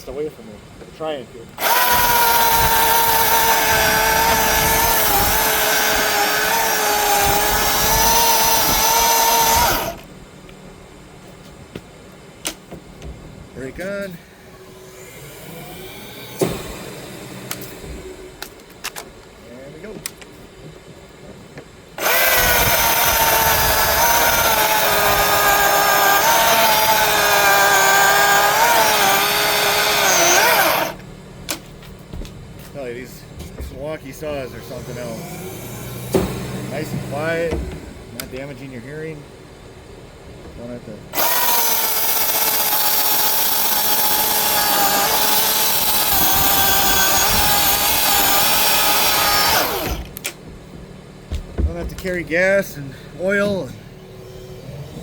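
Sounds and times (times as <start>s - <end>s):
electric chainsaw cutting wood: 1.6s - 10.1s, 14.4s - 18.1s, 22.0s - 31.1s, 34.4s - 37.6s, 41.1s - 50.4s, 54.0s - 55.0s.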